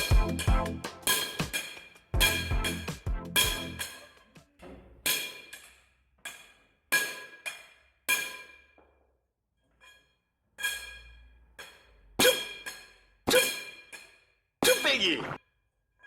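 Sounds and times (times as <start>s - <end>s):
hammer striking steel: 0.0s - 4.2s.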